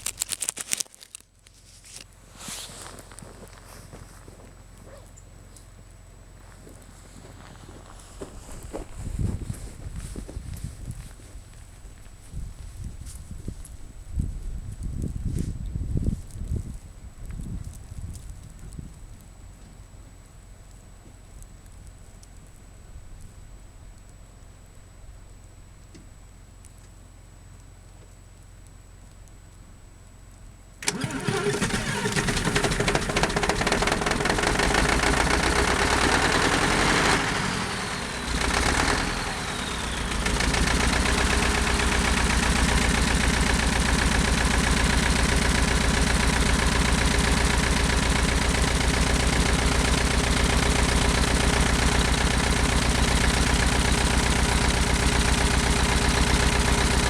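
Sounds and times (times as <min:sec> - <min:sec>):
diesel engine starting and running: 0:06.4 - 0:11.1, 0:30.8 - 0:57.0.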